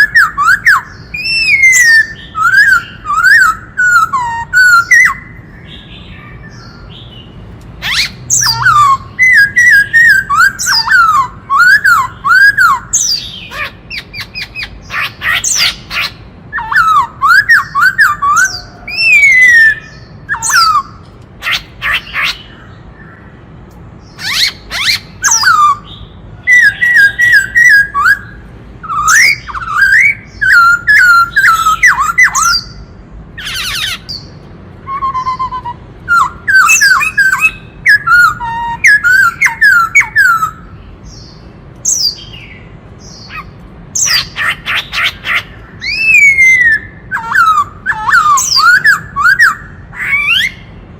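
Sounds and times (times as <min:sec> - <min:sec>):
bird whistled song: 0:00.0 - 0:23.4, 0:24.0 - 0:50.8
rapid harsh bird notes: 0:00.0 - 0:50.9.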